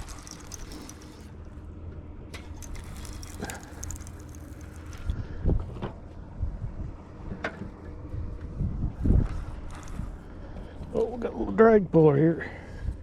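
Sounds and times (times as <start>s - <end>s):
wind rumbling on microphone: 8.1s - 10.2s.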